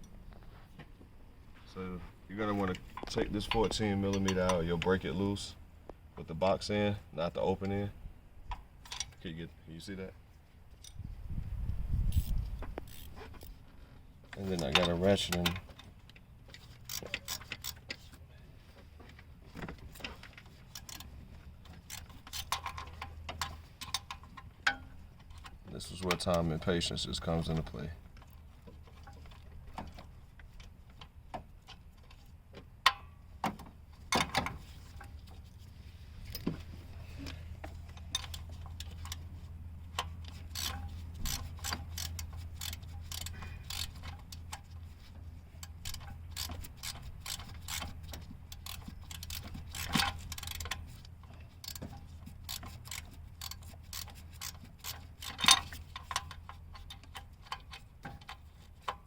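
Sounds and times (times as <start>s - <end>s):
ratchet wrench clicking: 12.1s - 13.2s, 16.6s - 18.0s, 20.6s - 21.1s, 21.7s - 25.5s, 37.6s - 59.0s.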